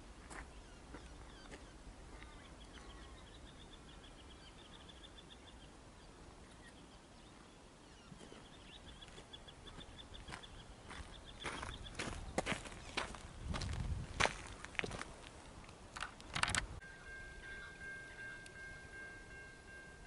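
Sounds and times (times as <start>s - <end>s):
bird chirping: 0.4s - 13.5s.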